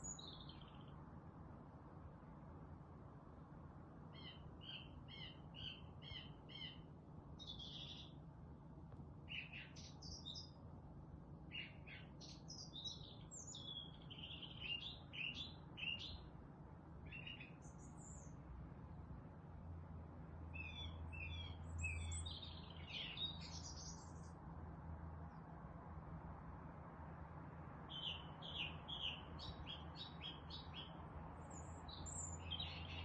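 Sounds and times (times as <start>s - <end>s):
songbirds chirping and singing: 0.0s - 0.9s, 4.2s - 8.2s, 9.3s - 10.6s, 11.5s - 16.3s, 17.1s - 18.4s, 20.6s - 24.3s, 27.9s - 33.0s.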